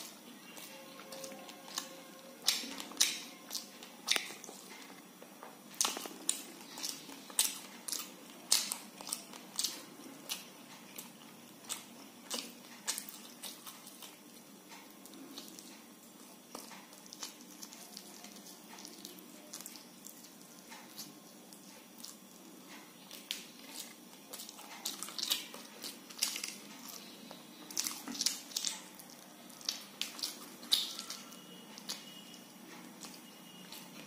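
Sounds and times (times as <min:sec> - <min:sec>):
wet mouth smacks and chewing: 0:01.7 - 0:04.8, 0:27.7 - 0:32.2.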